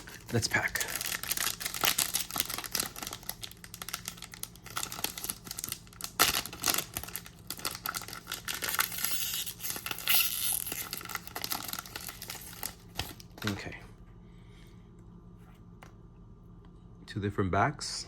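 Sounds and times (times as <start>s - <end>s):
foil pack crinkling and ripping: 0.0s - 13.6s.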